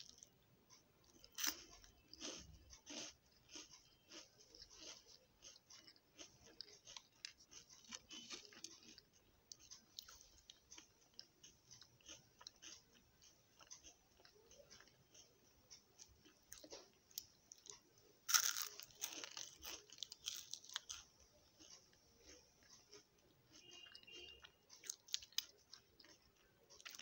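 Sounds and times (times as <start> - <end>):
chewing crunchy wafer: 0.0 - 27.0.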